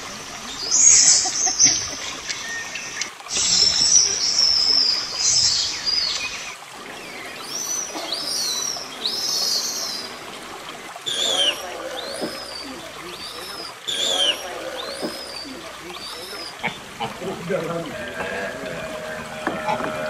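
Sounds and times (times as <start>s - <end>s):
birds calling shrilly: 0.0s - 20.0s
high bird chirps: 0.5s - 10.2s, 11.1s - 16.8s.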